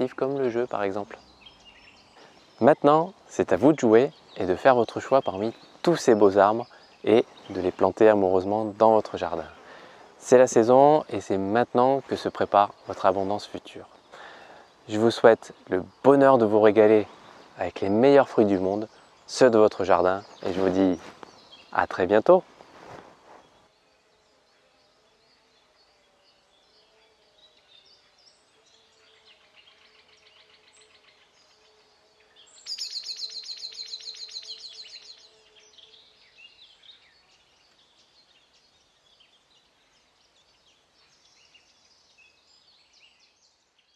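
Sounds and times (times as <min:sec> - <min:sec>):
faint bird chirps: 0:00.0 - 0:43.9
bird rapid trill: 0:32.4 - 0:36.3.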